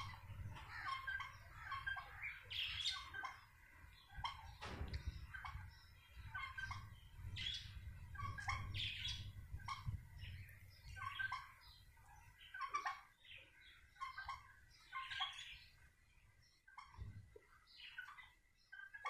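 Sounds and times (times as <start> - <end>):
birds chirping: 0.0 - 19.0
low rumble: 4.6 - 11.1.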